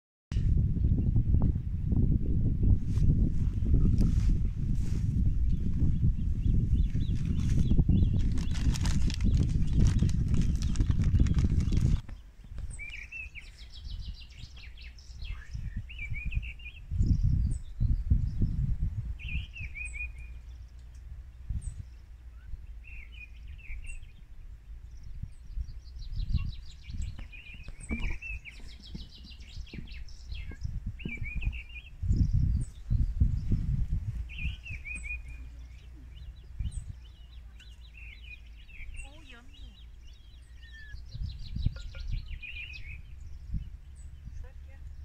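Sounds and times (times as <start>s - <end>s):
low rumbling wind gusts: 0.3s - 45.0s
songbirds chirping and trilling: 0.8s - 45.0s.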